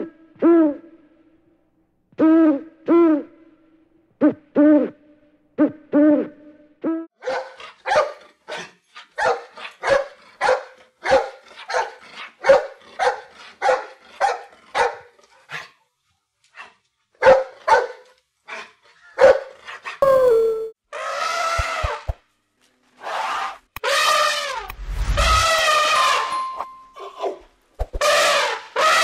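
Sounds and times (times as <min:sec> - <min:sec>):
animal barking: 0:07.2 - 0:15.1.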